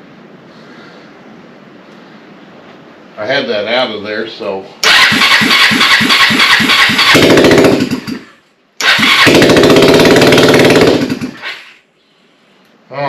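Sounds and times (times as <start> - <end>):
engine cranking and starting: 4.8 - 11.7.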